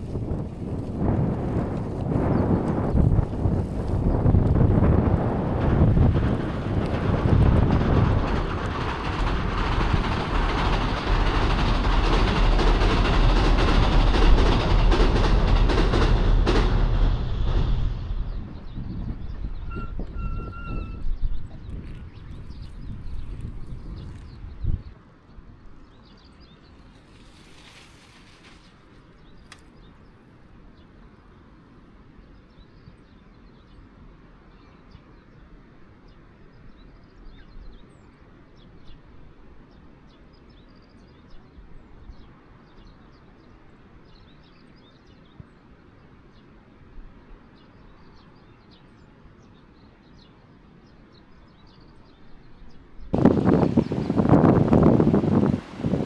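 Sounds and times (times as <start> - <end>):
faint bird chirps: 18.3 - 22.6.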